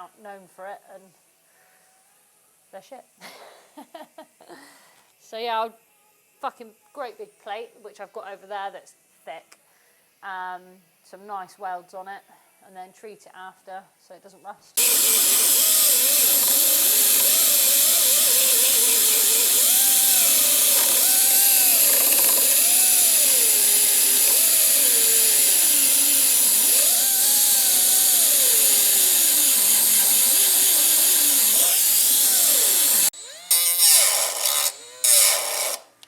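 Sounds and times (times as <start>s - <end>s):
angle grinder on metal: 14.8s - 36.0s.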